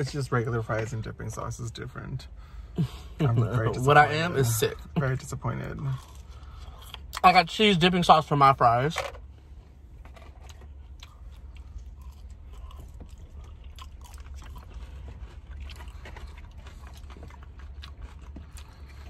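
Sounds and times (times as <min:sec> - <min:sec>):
chewing french fries: 0:02.9 - 0:07.6, 0:10.0 - 0:19.0.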